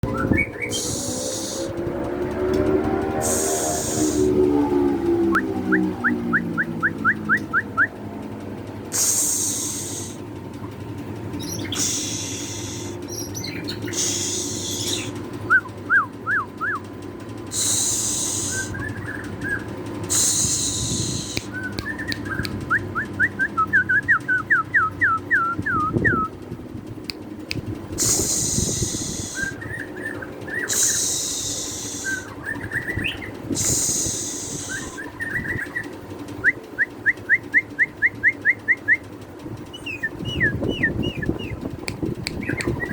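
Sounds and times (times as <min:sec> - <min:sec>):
bird harsh hissing bursts: 0:00.7 - 0:01.7, 0:03.2 - 0:04.3, 0:08.9 - 0:10.3, 0:11.6 - 0:15.2, 0:17.5 - 0:18.8, 0:20.1 - 0:21.6, 0:27.9 - 0:29.6, 0:30.6 - 0:32.4, 0:33.4 - 0:35.1.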